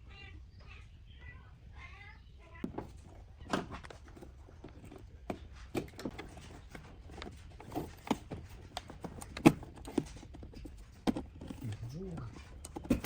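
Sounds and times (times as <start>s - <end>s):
tools and parts knocking: 2.6s - 13.0s.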